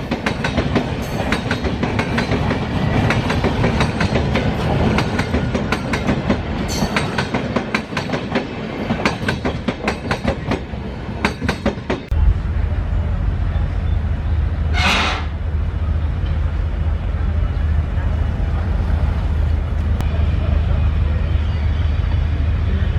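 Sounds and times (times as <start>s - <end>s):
train wheels clattering over rail joints: 0.0s - 12.1s.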